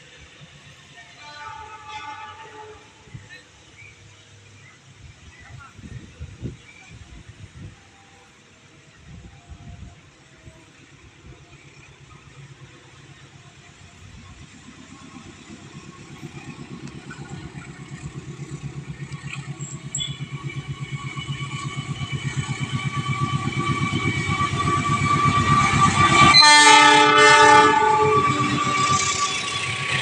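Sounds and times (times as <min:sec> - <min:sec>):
train rumbling: 0:00.0 - 0:30.0
train horn blast: 0:01.0 - 0:03.3, 0:21.6 - 0:30.0.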